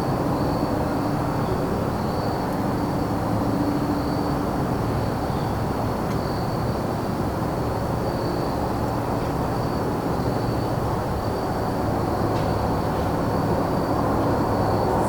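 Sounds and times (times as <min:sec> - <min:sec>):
distant traffic rumble: 0:11.7 - 0:15.0.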